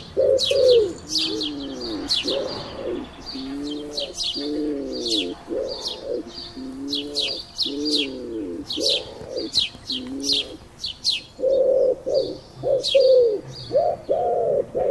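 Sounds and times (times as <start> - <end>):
pigeons cooing: 0.0 - 14.9
small birds chirping: 0.0 - 14.9.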